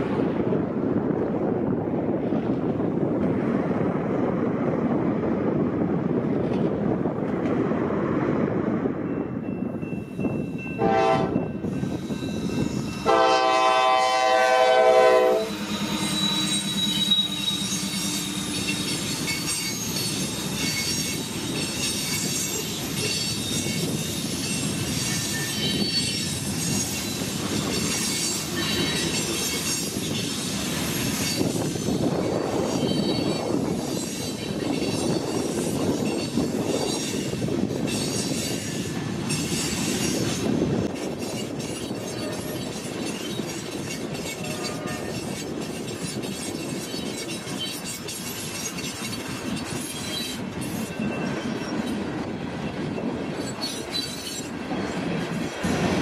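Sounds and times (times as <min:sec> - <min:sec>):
low train rumble: 0:00.0 - 0:56.0
train horn blasts: 0:10.8 - 0:11.5, 0:13.0 - 0:18.0, 0:44.4 - 0:45.2
wheel squeal: 0:15.5 - 0:40.5, 0:41.2 - 0:52.0, 0:52.9 - 0:55.5
wheels clattering on rails: 0:15.5 - 0:56.0.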